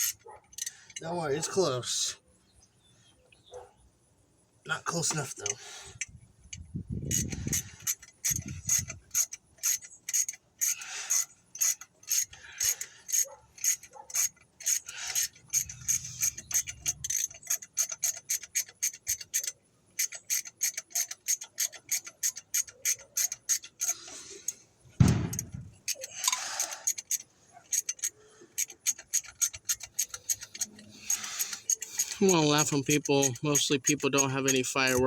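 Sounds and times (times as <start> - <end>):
ratchet wrench clicking: 0.0 - 1.0, 5.1 - 24.6, 25.3 - 35.0.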